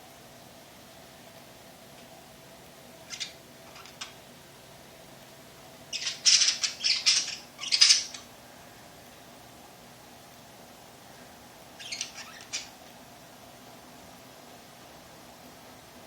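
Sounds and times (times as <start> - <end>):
birds giving harsh raspy calls: 5.9 - 8.3, 11.8 - 12.8.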